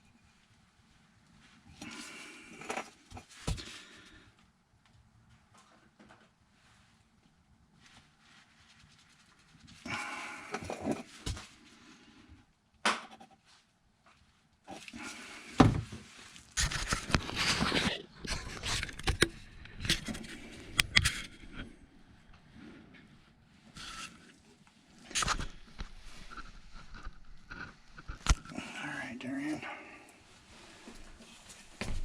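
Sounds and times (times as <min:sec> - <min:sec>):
hands and tools rustling and scraping: 0:05.3 - 0:12.0, 0:13.1 - 0:29.5.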